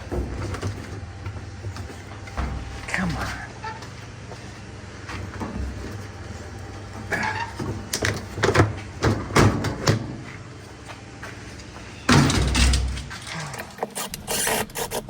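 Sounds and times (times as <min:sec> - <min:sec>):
metal tools scraping in washer drum: 0:07.0 - 0:07.7.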